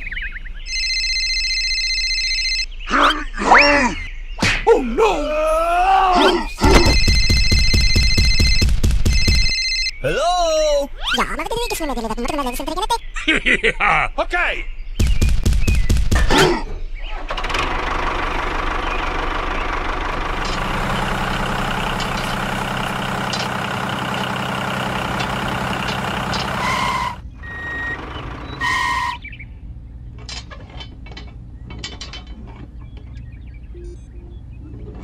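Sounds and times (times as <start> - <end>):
short beeps: 6.6 - 9.8, 33.7 - 34.8
heavy machinery engine rattling: 17.1 - 29.2.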